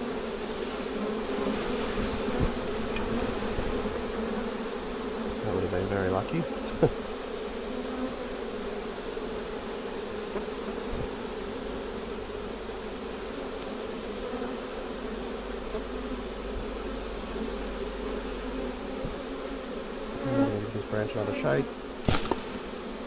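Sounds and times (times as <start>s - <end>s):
bee swarm buzzing: 0.0s - 23.0s.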